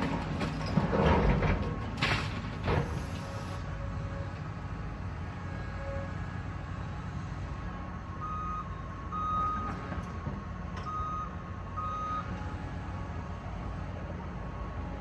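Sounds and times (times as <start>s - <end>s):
low rumble of diesel engines: 0.0s - 15.0s
reversing alarm beeping: 8.2s - 10.0s, 10.8s - 12.4s.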